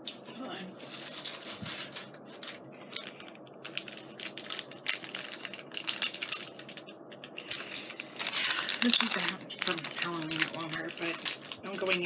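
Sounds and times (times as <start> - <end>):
plastic gems clicking and rattling: 8.2 - 12.0.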